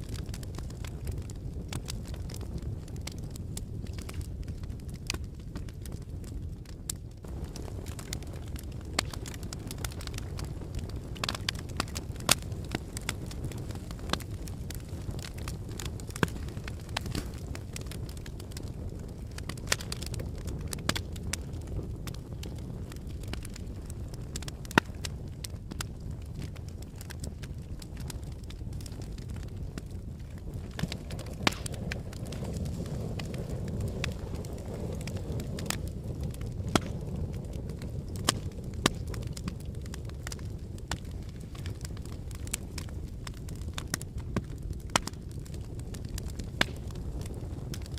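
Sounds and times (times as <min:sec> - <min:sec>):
lava crackling and popping: 0:00.0 - 0:47.9
volcanic low rumble: 0:00.0 - 0:47.9
sharp cracks: 0:11.2 - 0:17.9, 0:30.7 - 0:33.3.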